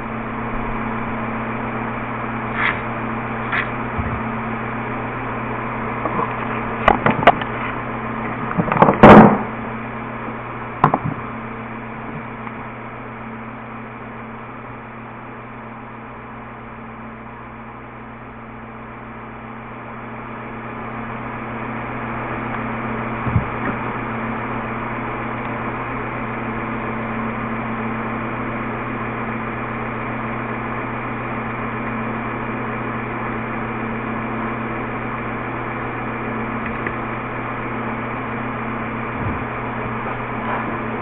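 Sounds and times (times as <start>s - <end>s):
low electrical hum: 0.0s - 41.0s
loud clatter: 6.0s - 9.6s
sharp knocks: 10.8s - 11.3s.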